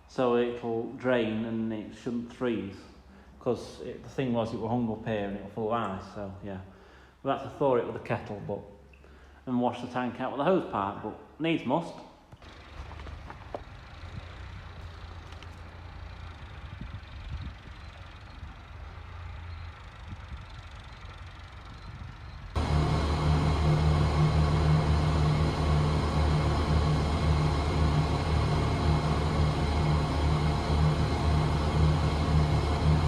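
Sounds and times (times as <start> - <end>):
engine running loudly: 12.4 - 17.9, 22.6 - 33.0
faint low hum: 12.4 - 33.0.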